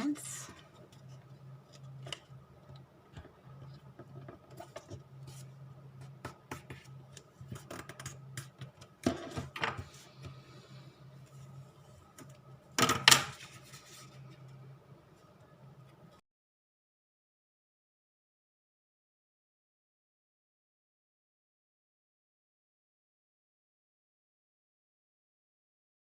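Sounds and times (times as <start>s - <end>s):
steady low hum: 0.0s - 12.8s
paper folding and rustling: 13.1s - 14.5s.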